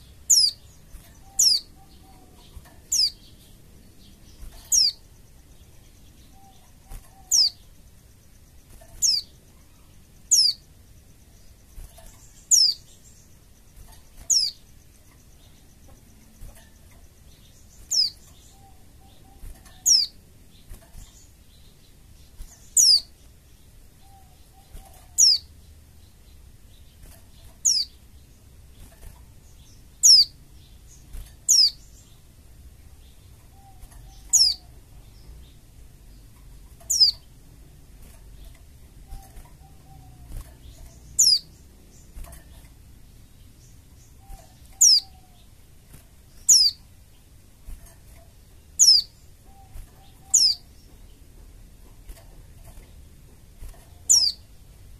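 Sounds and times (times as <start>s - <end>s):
bird calling with falling notes: 6.3s - 7.7s, 44.2s - 45.5s, 48.8s - 50.7s.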